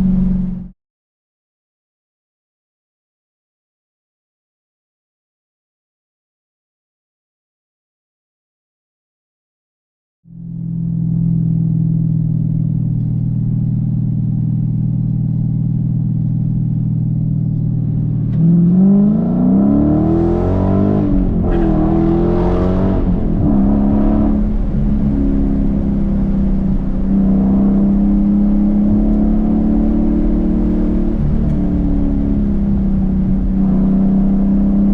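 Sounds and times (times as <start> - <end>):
car engine and exhaust drone: 0.0 - 0.8, 10.3 - 34.9.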